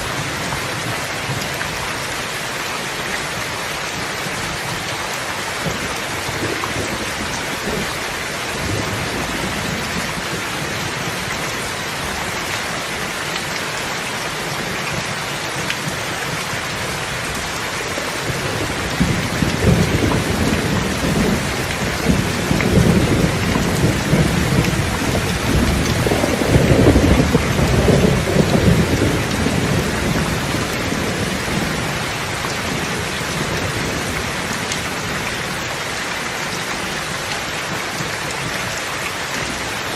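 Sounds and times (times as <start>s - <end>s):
steady rain falling: 0.0s - 39.9s
thunder rumbling: 5.5s - 11.4s, 15.8s - 35.6s.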